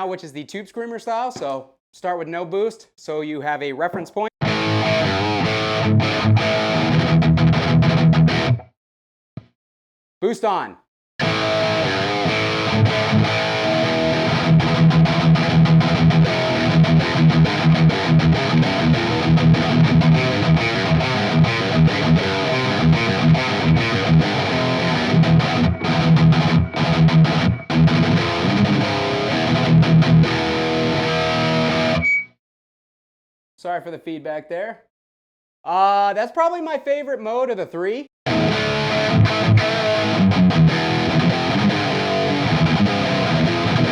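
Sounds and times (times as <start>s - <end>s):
distorted electric guitar riffing: 4.4s - 8.7s, 11.2s - 32.3s, 38.3s - 43.9s
guitar feedback squeal: 17.9s - 29.6s, 30.4s - 32.4s.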